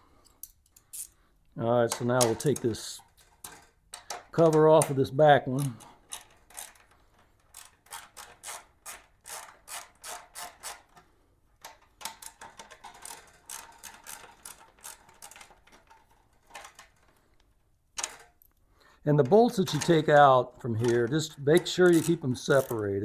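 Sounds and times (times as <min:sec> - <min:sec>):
hand ratchet clicking: 0:05.6 - 0:11.0, 0:11.6 - 0:16.8, 0:20.8 - 0:22.9.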